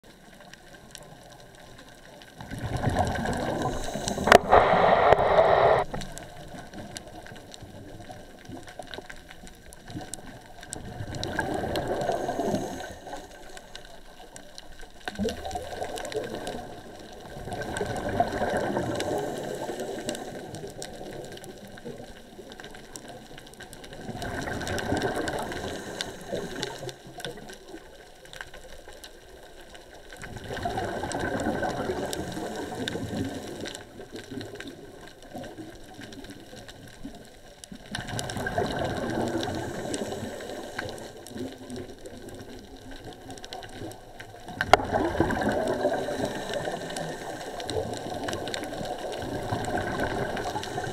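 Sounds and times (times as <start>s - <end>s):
exhaled bubbles rushing underwater: 0.1s - 50.9s
quiet breathing through regulator: 3.1s - 6.0s, 11.1s - 14.6s, 15.7s - 21.4s, 24.4s - 27.7s, 30.8s - 34.2s, 38.4s - 42.2s, 43.1s - 50.9s.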